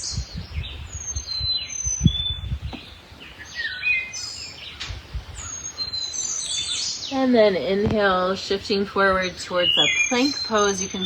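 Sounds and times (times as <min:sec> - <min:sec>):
songbirds singing: 0:00.0 - 0:11.0
soft low thumps: 0:00.2 - 0:03.0, 0:07.4 - 0:09.3.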